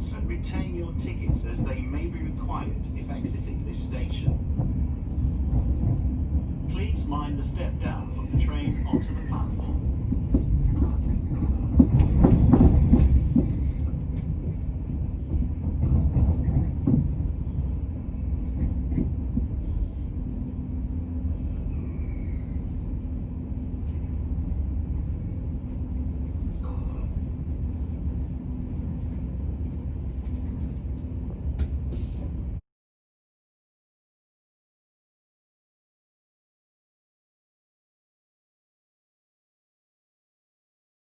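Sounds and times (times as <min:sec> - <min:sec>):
train carriage rumble: 0:00.0 - 0:32.6.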